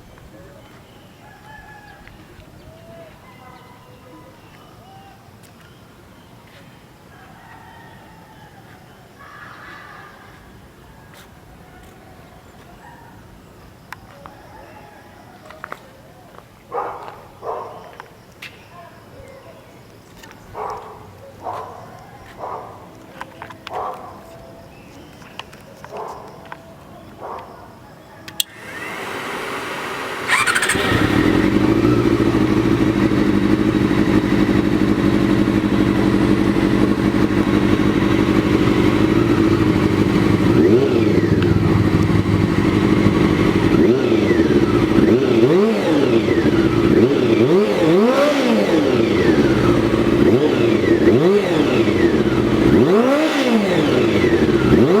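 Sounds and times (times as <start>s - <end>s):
electric starter cranking: 28.4s - 33.9s
engine throttle blips: 28.4s - 55.0s
motorcycle engine idling: 28.4s - 55.0s.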